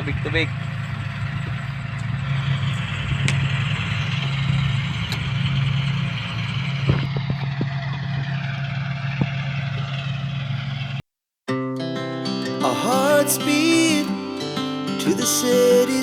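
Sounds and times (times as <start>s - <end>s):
tractor diesel engine under load: 0.0s - 11.1s.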